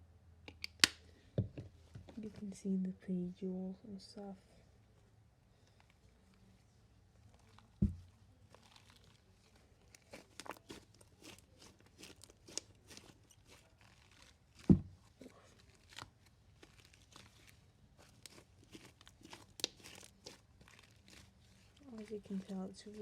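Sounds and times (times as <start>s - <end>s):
slime sticky crackles and snaps: 7.2s - 14.7s, 15.6s - 23.0s
dull thumps: 7.8s - 8.1s, 14.6s - 15.0s.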